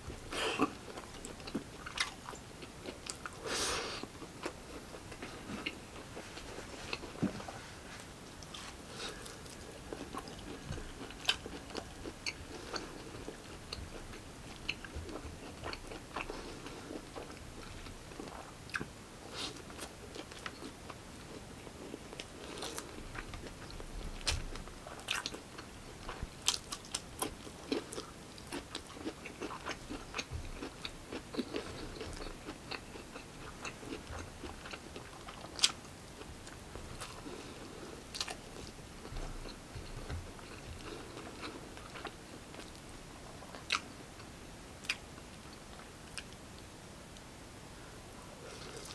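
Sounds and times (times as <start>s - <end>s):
man chewing and lip-smacking: 0.6s - 3.4s.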